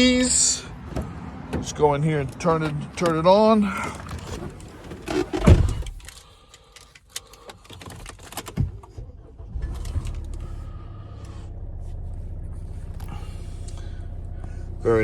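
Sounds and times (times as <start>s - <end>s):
diesel engine cranking and starting: 0.1s - 15.0s
engine idling: 9.0s - 15.0s.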